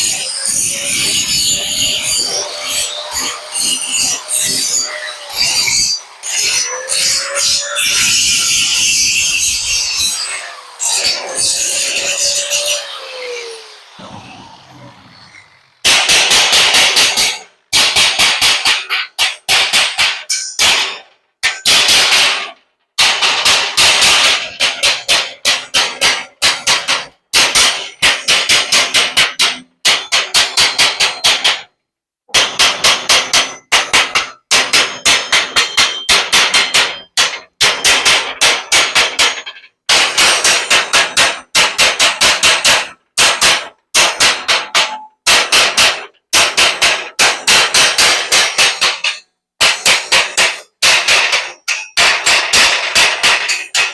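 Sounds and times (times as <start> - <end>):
hammer striking metal: 32.4 - 53.9.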